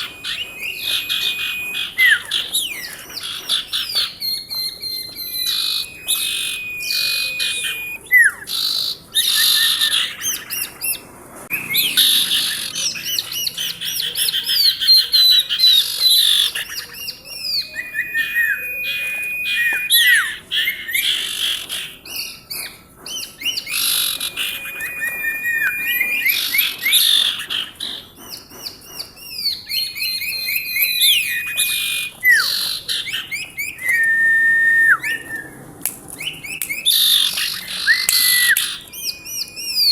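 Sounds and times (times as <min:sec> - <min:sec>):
long whistled bird note: 0:00.0 - 0:02.9, 0:04.4 - 0:08.5, 0:17.4 - 0:21.1, 0:23.6 - 0:27.3
bird singing chirps and trills: 0:00.0 - 0:39.9.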